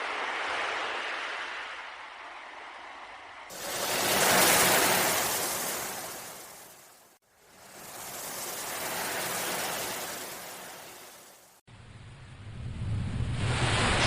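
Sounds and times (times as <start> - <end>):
ocean waves breaking: 3.5 - 11.6.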